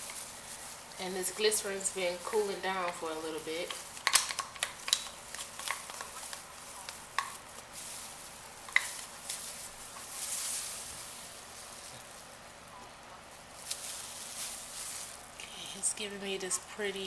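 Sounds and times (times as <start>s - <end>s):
utensil stirring and scraping container: 0.0s - 12.3s.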